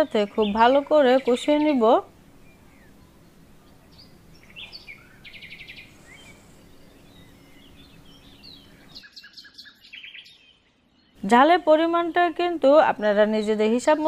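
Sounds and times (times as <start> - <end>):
bird trill: 0.0 - 11.2
birds chirping: 0.0 - 14.0
low steady hum: 0.0 - 14.0.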